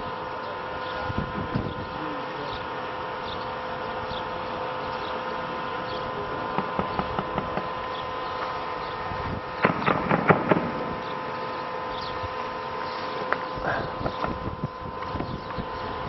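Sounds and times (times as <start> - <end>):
steady hum: 0.0 - 16.0
sharp knocks: 6.6 - 7.7, 9.6 - 11.0.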